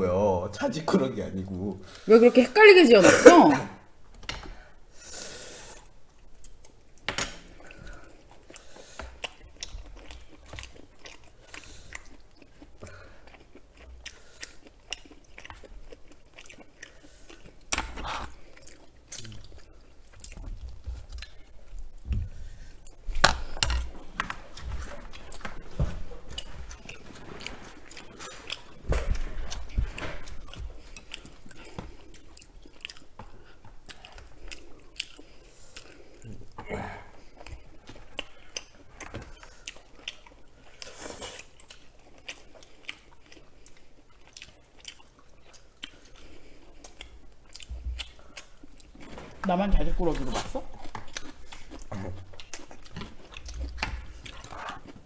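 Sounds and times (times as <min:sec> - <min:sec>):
close-miked chewing and biting: 0:07.6 - 0:49.2, 0:50.0 - 0:55.0.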